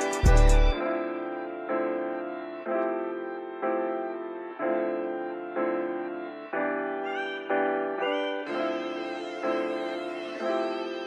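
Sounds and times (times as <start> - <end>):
beat with heavy bass: 0.0 - 0.8
held keyboard chords: 0.0 - 11.0.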